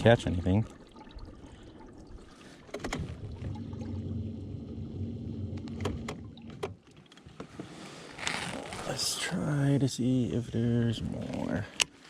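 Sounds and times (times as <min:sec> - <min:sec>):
low mechanical hum: 0:02.9 - 0:06.6.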